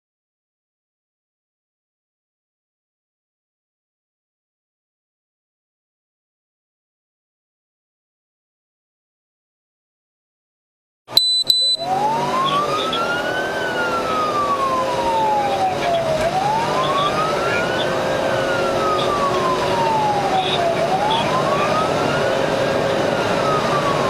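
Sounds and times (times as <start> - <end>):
short high beep: 11.1 - 11.9
road and engine noise: 11.1 - 24.0
police siren wailing: 11.5 - 24.0.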